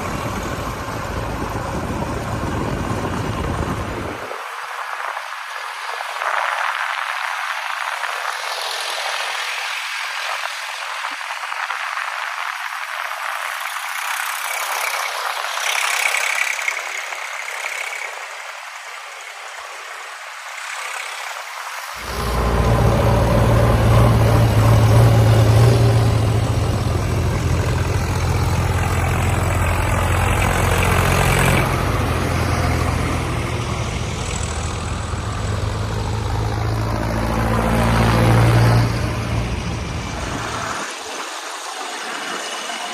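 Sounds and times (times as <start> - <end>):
tractor engine running: 0.0 - 4.3, 22.0 - 40.8.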